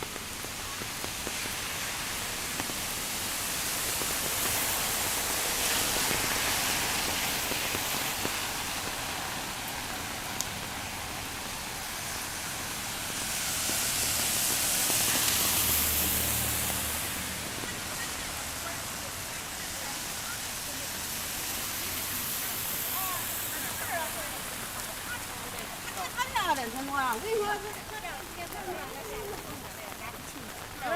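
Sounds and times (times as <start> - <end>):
wash with low rumble: 0.0 - 26.3
rain hissing: 0.0 - 30.9.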